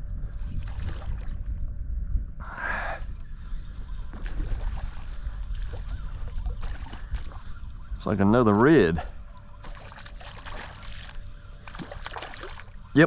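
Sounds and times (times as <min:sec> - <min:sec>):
wind rumble on microphone: 0:00.0 - 0:13.0
water moving around kayak: 0:00.2 - 0:01.8, 0:03.0 - 0:13.0
faint ticks: 0:02.7 - 0:04.3, 0:05.2 - 0:07.8.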